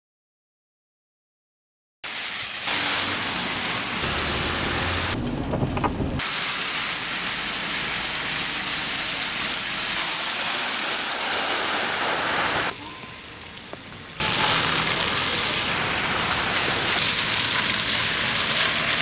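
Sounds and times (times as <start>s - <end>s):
heavy rain pouring: 2.0s - 19.0s
low rumble: 4.0s - 6.2s.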